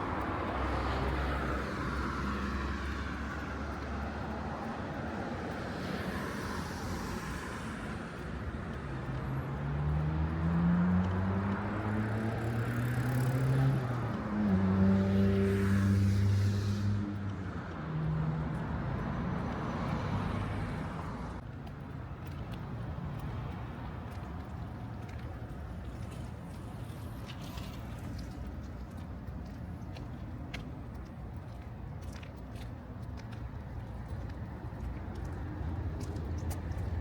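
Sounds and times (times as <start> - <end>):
street traffic hum: 0.0 - 37.0
vehicle engine passing: 9.7 - 17.3.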